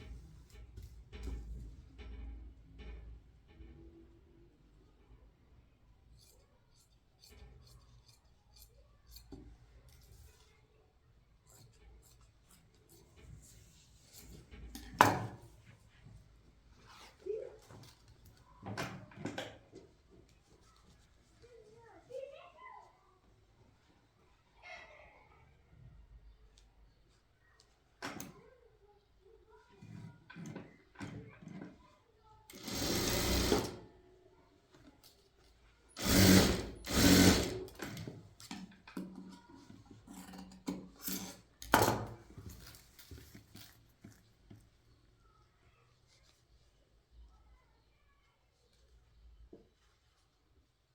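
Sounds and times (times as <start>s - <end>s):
sewing machine running: 32.5s - 33.8s, 36.0s - 37.9s
handling noises: 36.9s - 45.0s.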